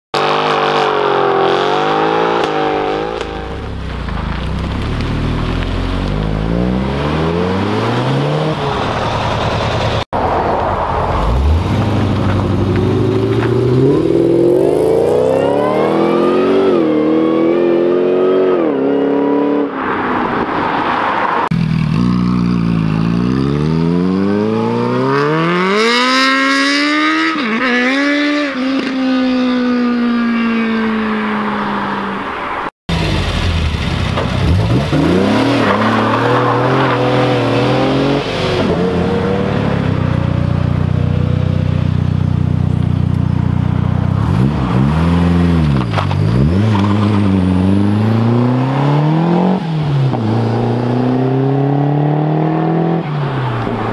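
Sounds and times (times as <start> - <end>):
cars accelerating hard: 5.2 - 21.5, 23.0 - 31.5, 34.4 - 40.3, 44.1 - 53.9.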